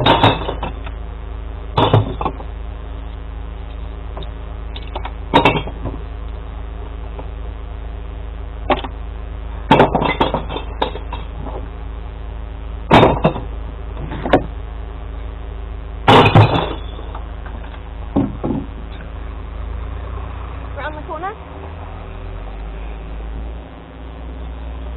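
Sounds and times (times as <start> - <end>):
glass bottles crashing: 0.0 - 0.8, 5.3 - 5.8, 9.7 - 11.4, 16.1 - 17.1
truck engine idling: 0.0 - 24.9.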